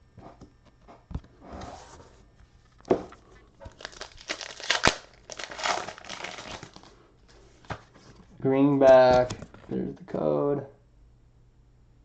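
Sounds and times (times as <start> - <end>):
foil wrapper crinkling: 3.6 - 7.0.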